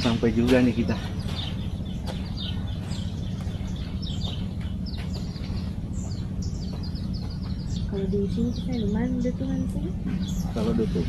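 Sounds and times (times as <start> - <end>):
birds chirping: 0.0 - 11.0
steady low rumble: 0.0 - 11.0.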